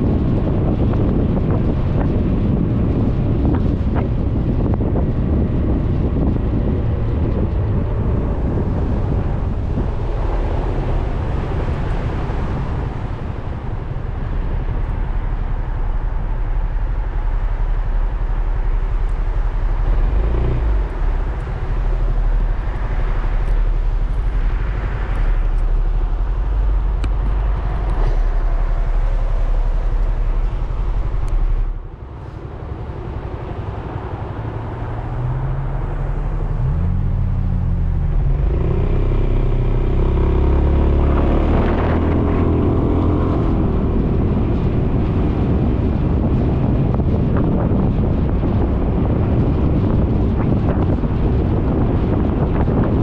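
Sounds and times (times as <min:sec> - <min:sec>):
wind and road noise: 0:00.0 - 0:53.0.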